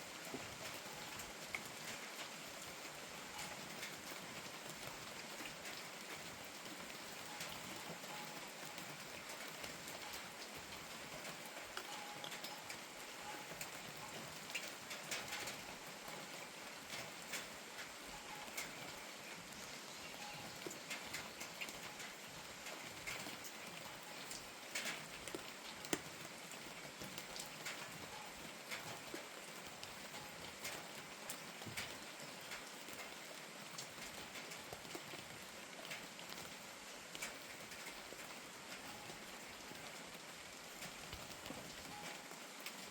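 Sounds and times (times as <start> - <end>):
rain falling: 0.0 - 42.9.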